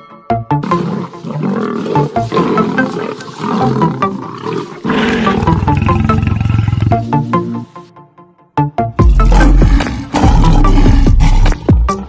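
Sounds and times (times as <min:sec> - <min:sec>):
background music with plucked notes: 0:00.0 - 0:01.2
lion roaring: 0:00.6 - 0:07.3, 0:09.0 - 0:12.0.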